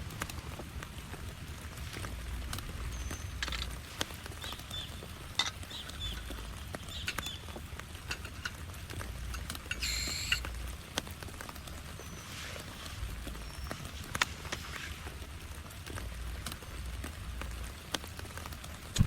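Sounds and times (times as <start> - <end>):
raindrops tapping: 0.0 - 19.0
short high bird chirps: 9.8 - 10.4.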